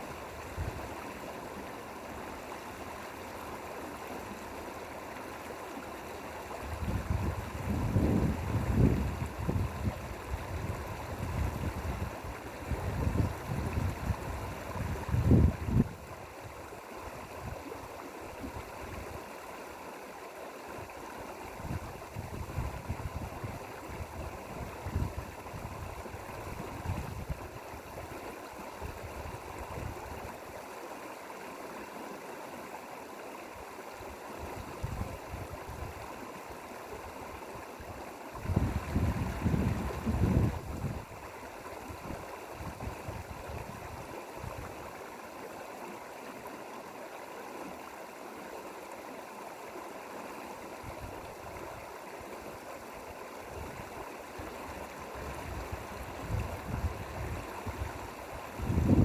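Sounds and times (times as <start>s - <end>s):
stream rushing water: 0.0s - 59.0s
wind buffeting microphone: 6.6s - 16.6s, 21.6s - 27.6s, 28.8s - 30.3s, 34.4s - 36.1s, 37.8s - 44.8s, 53.5s - 59.0s.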